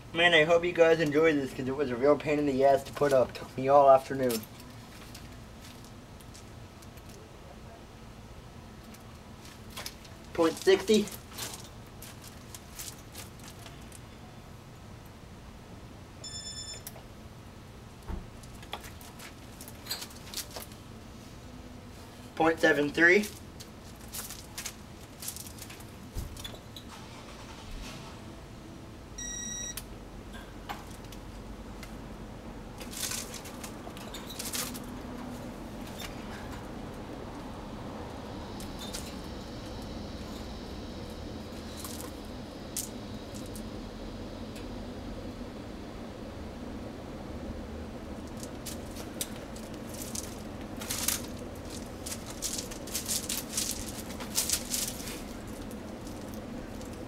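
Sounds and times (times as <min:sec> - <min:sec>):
ceiling fan running: 0:00.0 - 0:57.0
crackly rustling: 0:02.2 - 0:07.3, 0:08.6 - 0:14.2, 0:17.9 - 0:27.7, 0:30.5 - 0:43.8, 0:48.0 - 0:57.0
high electronic beep: 0:16.2 - 0:16.9, 0:29.2 - 0:29.8.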